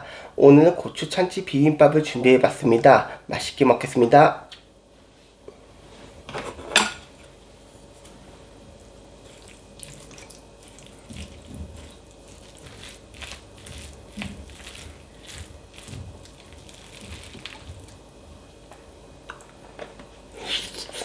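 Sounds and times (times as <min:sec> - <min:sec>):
wet chewing with crisp crunches: 0:09.2 - 0:18.1.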